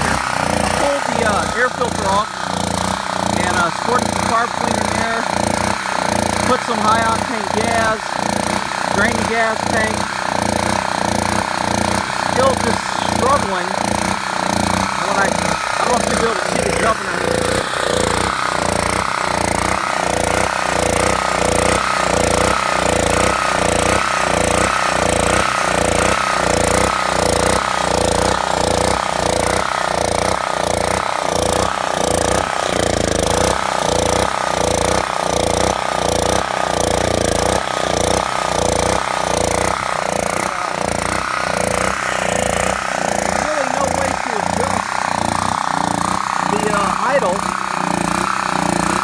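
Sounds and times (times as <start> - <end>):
generator engine pulsing: 0.0 - 49.0.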